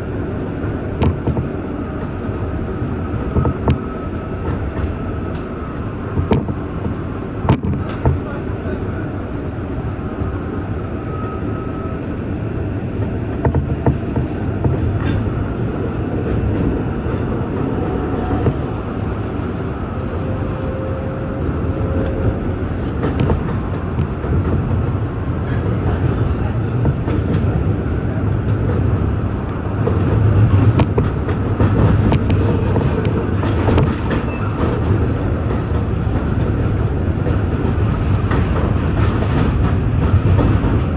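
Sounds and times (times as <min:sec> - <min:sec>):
subway train rumbling: 0:00.0 - 0:40.9.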